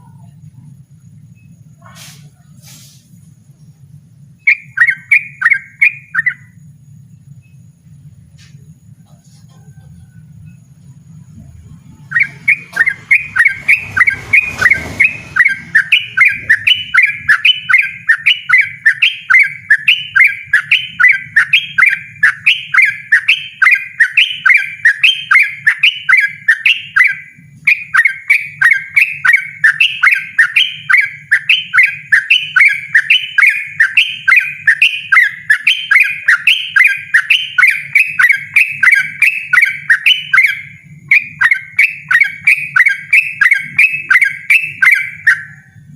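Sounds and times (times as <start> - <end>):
low hum: 0.0 - 45.9
brief rush of noise: 1.8 - 3.3
bird singing repeated note: 4.4 - 6.6, 11.8 - 45.8.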